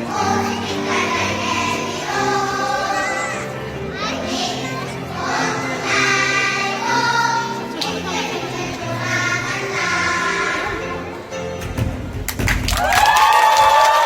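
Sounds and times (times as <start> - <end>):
children's choir singing: 0.0 - 11.6
instrumental accompaniment: 0.0 - 12.8.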